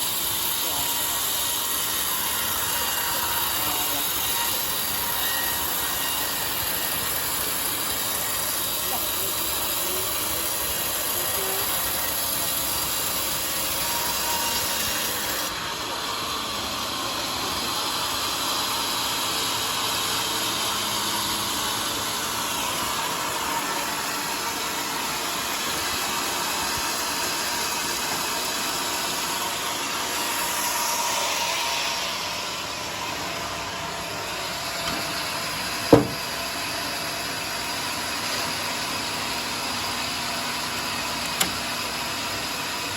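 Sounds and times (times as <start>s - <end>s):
bandsaw cutting log: 0.0s - 42.9s
sharp knock: 35.9s - 36.3s.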